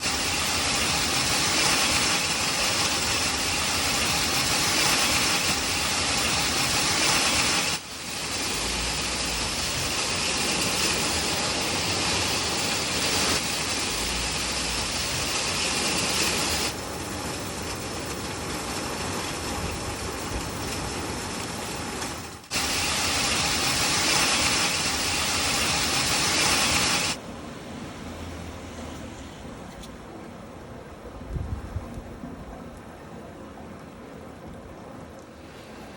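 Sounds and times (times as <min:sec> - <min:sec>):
hailstones clattering: 0:00.0 - 0:27.2.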